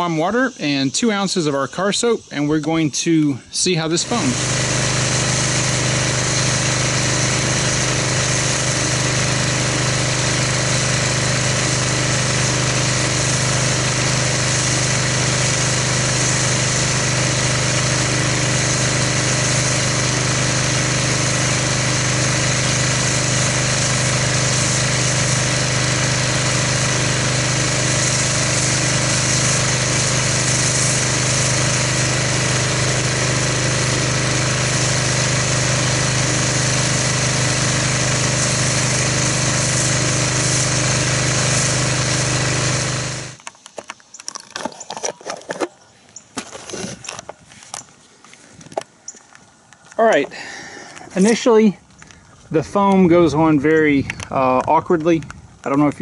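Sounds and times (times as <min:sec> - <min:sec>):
pressure washer motor hum: 0:02.5 - 0:43.5, 0:50.0 - 0:56.0
hiss of foam spray: 0:04.1 - 0:43.4.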